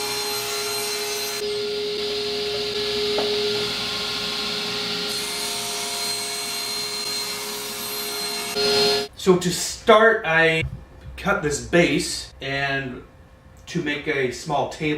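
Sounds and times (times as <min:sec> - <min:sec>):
power tool cutting wood: 0:00.0 - 0:09.1.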